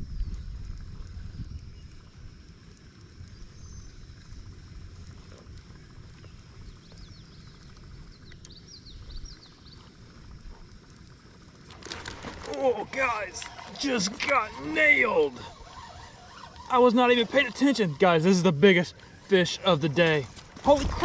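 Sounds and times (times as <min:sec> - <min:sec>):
wind rumble on microphone: 0:00.0 - 0:10.6, 0:20.4 - 0:21.0.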